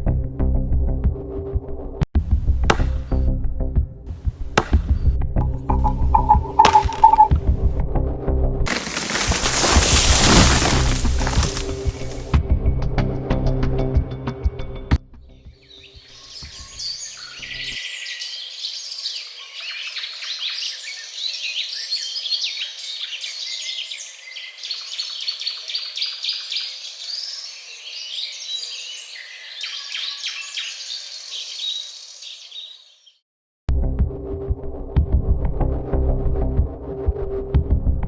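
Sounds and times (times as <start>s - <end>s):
small birds chirping and singing: 15.6s - 33.2s.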